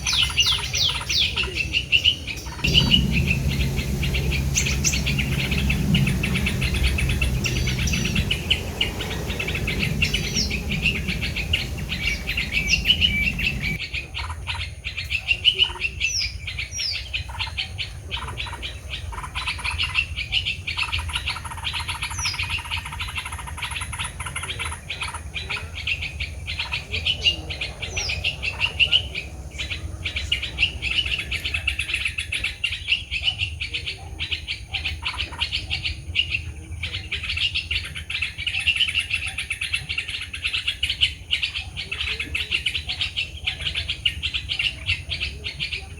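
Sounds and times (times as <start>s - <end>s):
small birds chirping: 0.0s - 45.9s
low rumble: 2.6s - 13.8s.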